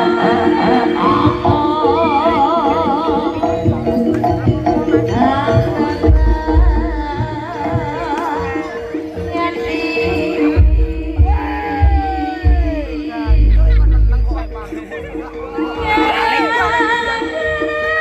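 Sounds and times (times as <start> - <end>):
hand drum rhythm: 0.0 - 8.4, 10.5 - 16.2
gamelan ensemble playing: 0.0 - 18.0
wavering melody with vibrato: 0.0 - 18.0
heavy low drum strokes: 10.6 - 14.6.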